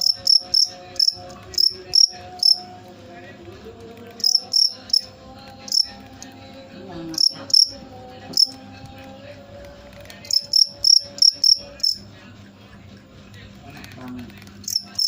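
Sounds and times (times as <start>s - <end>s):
cricket chirping: 0.0s - 2.7s, 4.2s - 5.1s, 5.7s - 6.0s, 7.2s - 8.6s, 10.2s - 12.0s, 14.6s - 15.0s.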